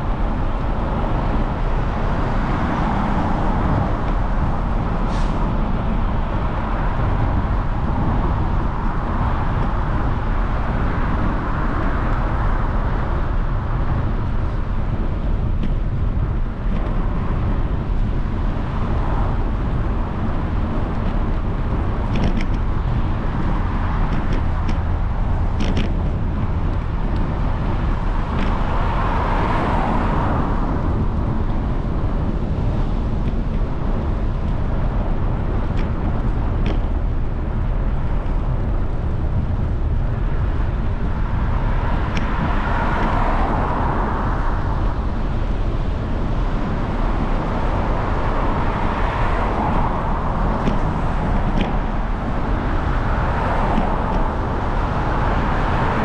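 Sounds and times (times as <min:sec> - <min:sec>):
wind rushing on microphone: 0:00.0 - 0:56.0.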